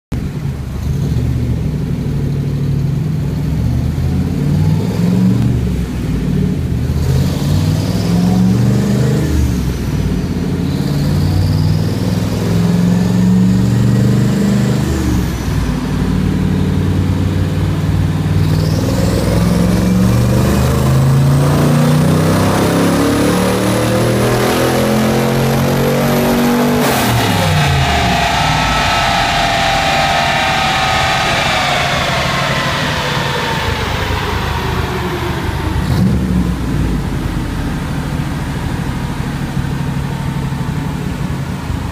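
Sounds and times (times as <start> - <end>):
car engine revving: 0.3 - 41.0
turbo whistle: 26.1 - 36.5.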